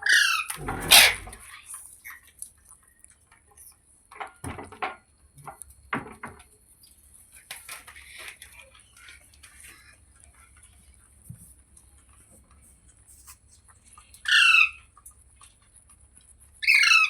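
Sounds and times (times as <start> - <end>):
parakeet call: 0.1 - 1.4
parakeet screech: 0.2 - 1.4.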